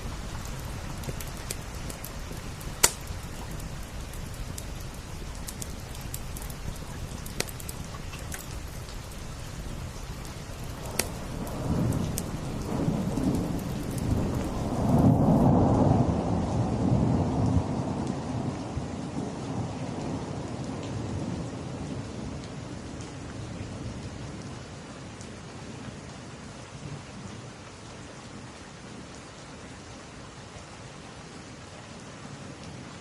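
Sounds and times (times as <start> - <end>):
wood fire crackling: 0.0 - 15.5
steady rain: 0.0 - 33.0
thunder rolling: 10.7 - 18.0.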